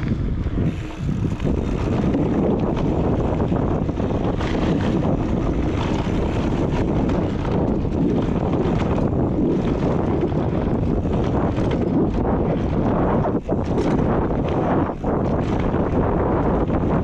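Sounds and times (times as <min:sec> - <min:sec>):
bike rattles and clicks: 0:00.0 - 0:17.0
tyres rumbling on dirt: 0:00.0 - 0:17.0
wind rushing over microphone: 0:00.0 - 0:17.0.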